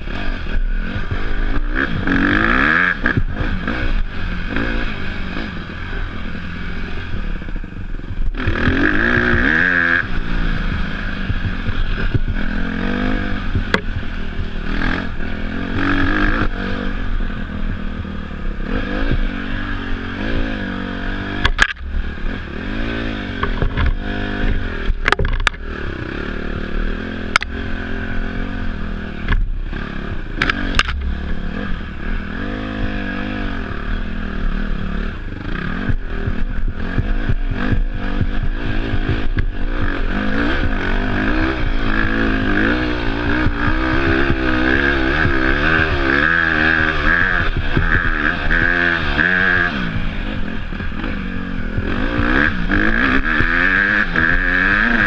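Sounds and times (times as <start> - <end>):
dirt bike engine revving: 0.0 - 55.0
clatter: 21.3 - 26.1, 27.0 - 28.2, 29.2 - 32.1
sharp knocks: 23.4 - 25.6.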